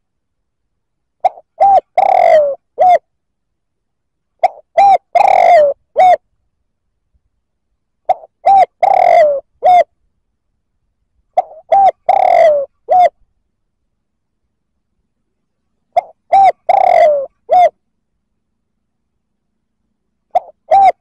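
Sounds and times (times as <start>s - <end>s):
dove cooing: 1.2s - 3.1s, 4.4s - 6.2s, 8.0s - 9.9s, 11.4s - 13.2s, 15.9s - 17.8s, 20.2s - 21.0s.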